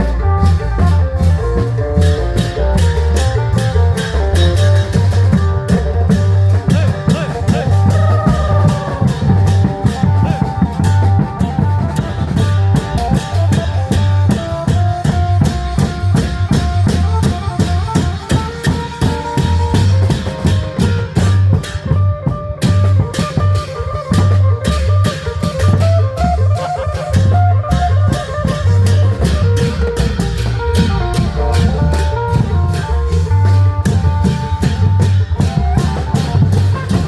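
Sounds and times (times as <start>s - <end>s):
fast driving drum rhythm: 0.0s - 37.0s
plucked-string melody: 20.8s - 37.0s.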